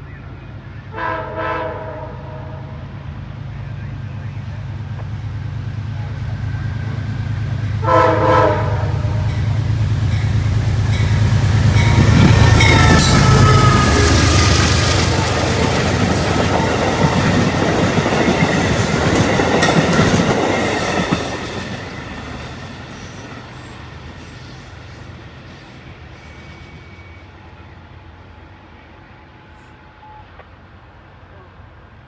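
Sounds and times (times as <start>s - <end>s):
train wheels running over rails: 4.8s - 27.0s.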